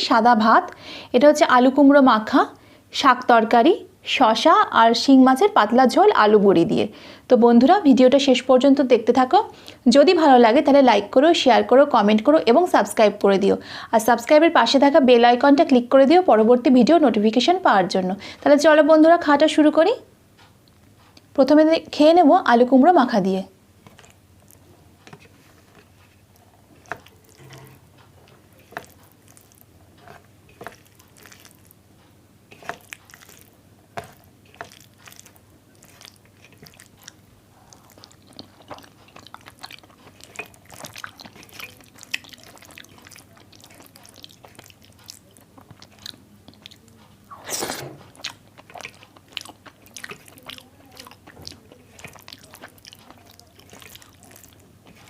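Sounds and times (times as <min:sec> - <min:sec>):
crunchy chewing: 0:23.8 - 0:55.0
person chewing food: 0:23.8 - 0:55.0.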